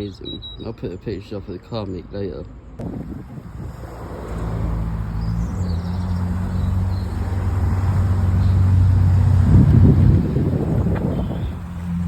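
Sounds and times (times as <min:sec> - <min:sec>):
car engine humming: 0:02.8 - 0:12.0.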